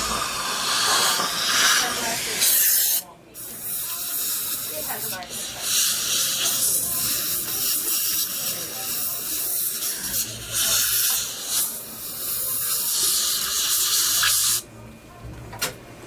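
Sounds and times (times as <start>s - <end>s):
dental equipment hissing: 0.0s - 14.6s.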